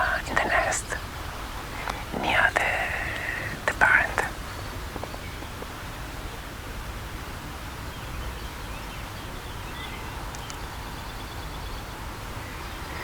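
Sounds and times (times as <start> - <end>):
faint bird calls: 0.0 - 6.1.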